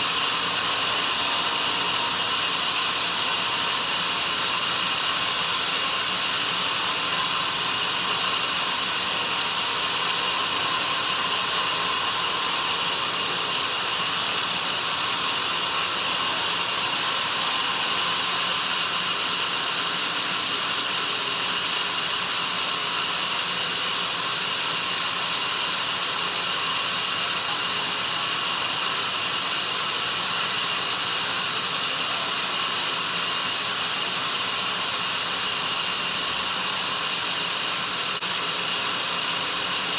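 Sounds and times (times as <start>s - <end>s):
band saw cutting log: 0.0s - 21.7s.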